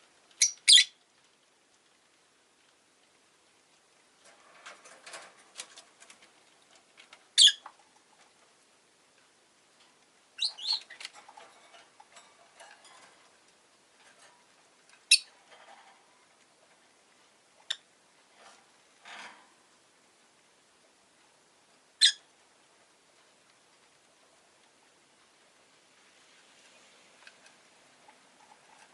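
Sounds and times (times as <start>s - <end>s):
bird chirps: 0.4s - 1.0s, 10.4s - 11.0s, 15.1s - 15.3s
scratching and rustling: 1.1s - 19.9s, 20.8s - 28.9s.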